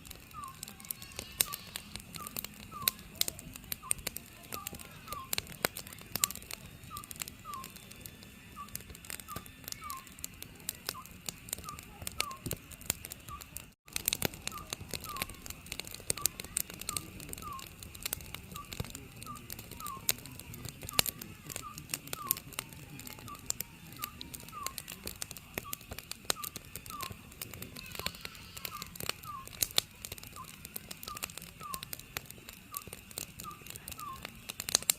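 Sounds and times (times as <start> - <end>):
wood fire crackling and popping: 0.0 - 34.9
owl hooting: 0.3 - 5.5, 6.1 - 7.9, 8.5 - 10.2, 10.9 - 12.5, 14.4 - 15.5, 16.1 - 20.2, 20.9 - 29.7, 30.3 - 32.0, 32.7 - 34.3.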